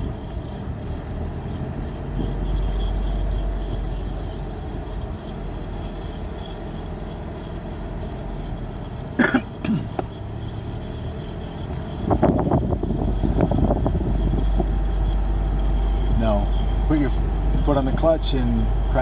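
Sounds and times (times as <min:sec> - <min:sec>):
engine and road rumble: 0:00.0 - 0:19.0
person coughing: 0:09.2 - 0:10.0.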